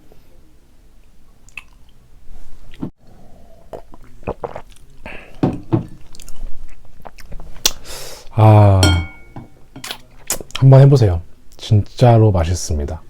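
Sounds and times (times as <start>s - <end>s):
close chewing with mouth smacks: 1.4s - 2.0s, 3.6s - 5.1s, 5.8s - 7.8s.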